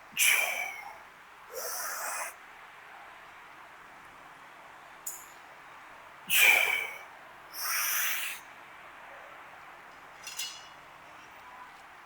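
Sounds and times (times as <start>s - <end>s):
person grunting: 0.2s - 2.3s
person exhaling hard: 0.2s - 2.4s, 6.3s - 7.0s, 7.6s - 8.4s.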